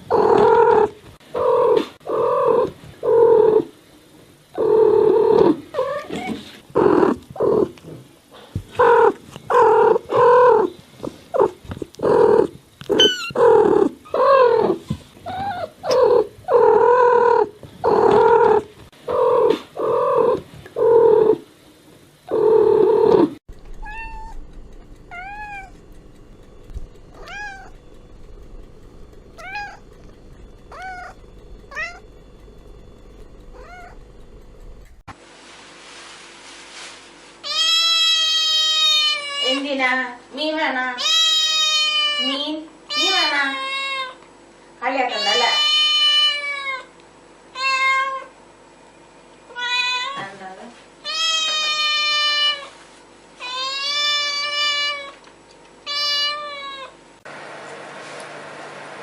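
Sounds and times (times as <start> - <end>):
cat meowing: 23.8 - 24.4, 27.2 - 27.7, 29.4 - 29.8, 30.7 - 32.0, 33.6 - 34.0, 37.5 - 39.6, 41.0 - 44.2, 51.1 - 52.7, 55.9 - 56.9.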